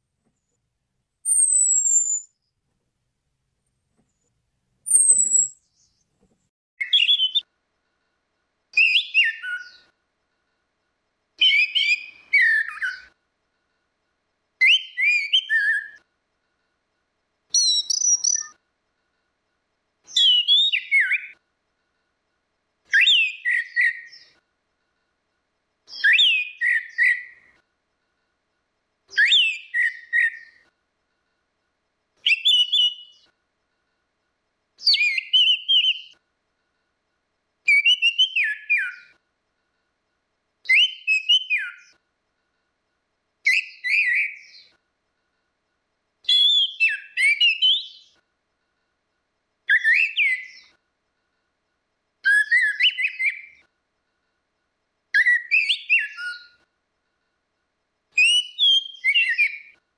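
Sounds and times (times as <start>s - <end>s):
thrush singing whistled phrases: 1.3s - 2.4s, 4.9s - 5.7s, 6.8s - 7.5s, 8.8s - 9.9s, 11.4s - 13.2s, 14.6s - 16.1s, 17.5s - 18.6s, 20.1s - 21.4s, 22.9s - 24.4s, 25.9s - 27.6s, 29.1s - 30.7s, 32.2s - 33.3s, 34.8s - 36.2s, 37.7s - 39.2s, 40.7s - 42.0s, 43.5s - 44.7s, 46.3s - 48.2s, 49.7s - 50.8s, 52.2s - 53.7s, 55.2s - 56.6s, 58.2s - 59.8s.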